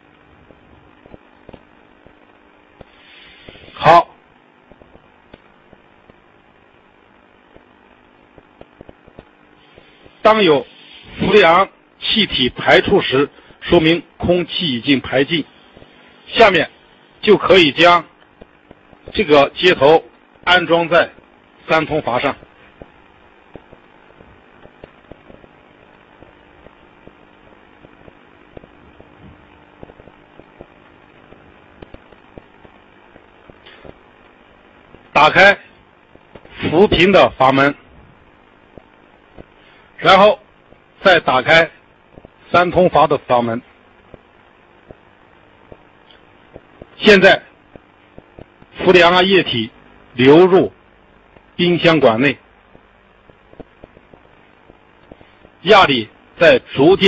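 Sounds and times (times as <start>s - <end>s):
steady background hiss: 0.0s - 57.0s
gas hissing from hose: 2.8s - 3.8s.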